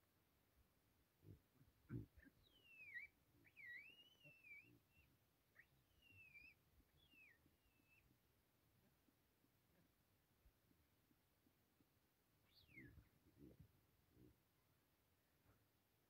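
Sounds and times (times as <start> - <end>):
bird singing: 2.2 - 8.1, 12.4 - 13.6.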